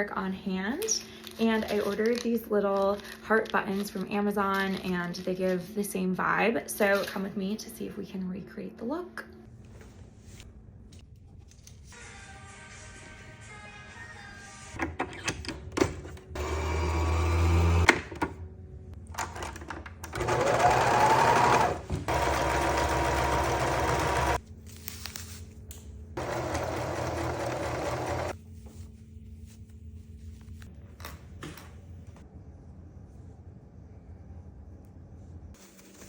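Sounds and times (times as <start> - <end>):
sewing machine stitching: 16.4 - 17.9, 19.3 - 24.4, 26.2 - 28.4.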